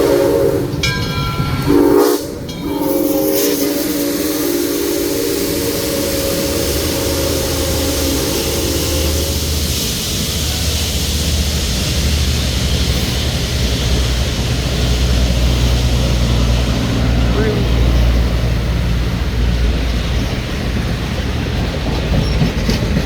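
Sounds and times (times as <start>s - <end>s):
train whistle chord: 0.0s - 0.9s, 1.6s - 9.7s
train rumble and hiss: 0.0s - 23.0s.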